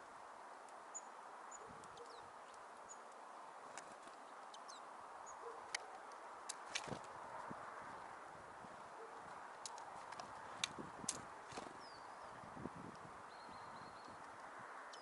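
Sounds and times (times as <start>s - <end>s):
steady low hiss: 0.0s - 15.0s
small birds calling: 0.7s - 6.2s, 11.5s - 12.6s, 13.2s - 15.0s.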